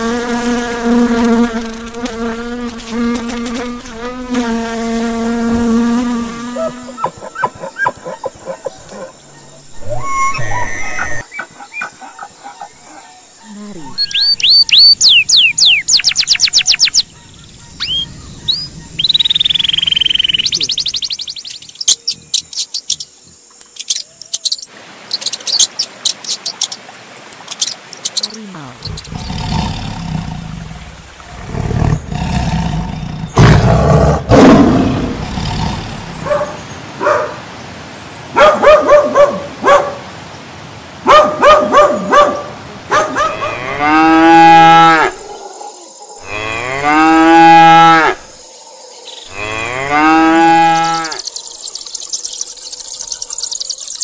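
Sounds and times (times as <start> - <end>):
cattle mooing: 43.2 - 45.2, 46.2 - 48.2, 49.3 - 51.2.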